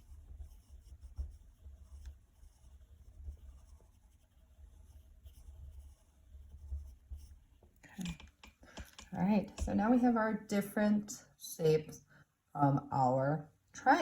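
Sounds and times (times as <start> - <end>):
drawing tool scratching paper: 0.0 - 9.8.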